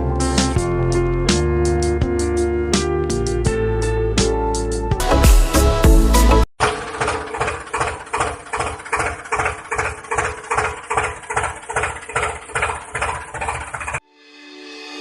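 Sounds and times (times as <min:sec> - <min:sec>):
tractor engine idling: 0:06.6 - 0:14.0.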